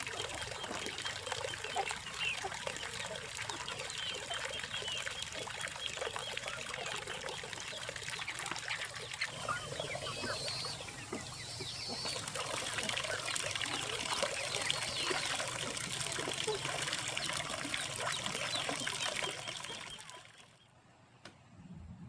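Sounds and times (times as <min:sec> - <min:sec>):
water trickling and splashing: 0:00.0 - 0:20.6
birds chirping: 0:00.0 - 0:21.5.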